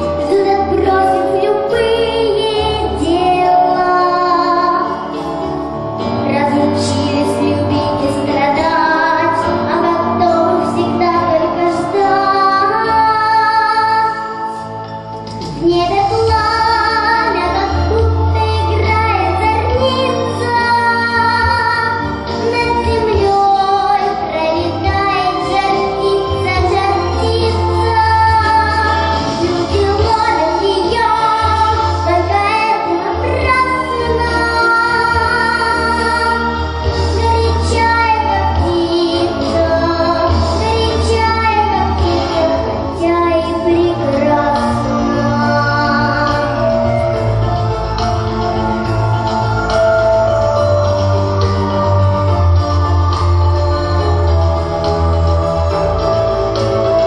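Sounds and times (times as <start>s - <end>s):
girl singing: 0.0s - 5.2s, 6.3s - 14.6s, 15.5s - 47.2s
instrumental accompaniment: 0.0s - 57.0s
steady bass line: 14.3s - 57.0s.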